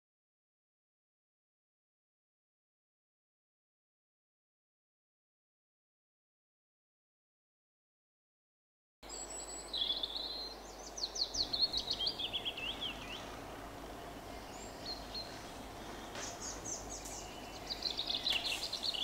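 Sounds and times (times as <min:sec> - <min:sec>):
faint background hiss: 0:09.0 - 0:19.0
small birds chirping: 0:09.0 - 0:19.0.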